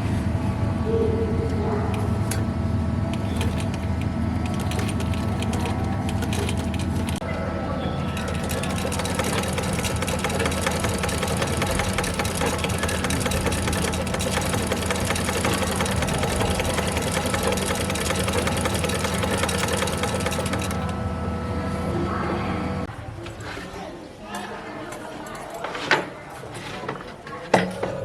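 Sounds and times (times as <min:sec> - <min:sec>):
sewing machine clattering: 0:03.1 - 0:07.2, 0:08.1 - 0:21.0.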